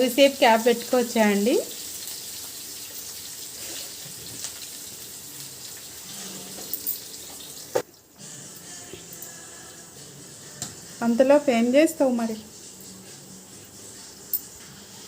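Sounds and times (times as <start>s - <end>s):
vegetables sizzling in oil: 0.0s - 8.0s.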